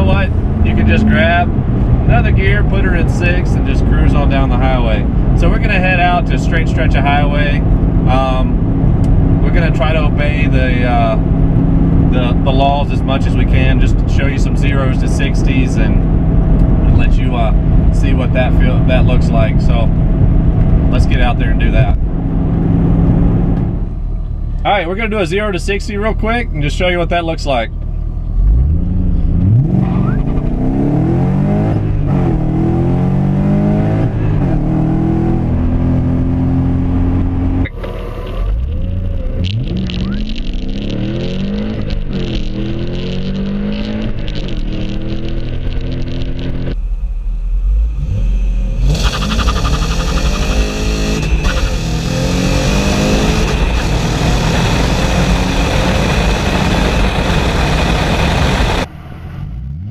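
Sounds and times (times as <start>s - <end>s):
car engine accelerating: 0.0s - 25.5s, 27.7s - 59.9s
rushing noise: 37.6s - 59.5s.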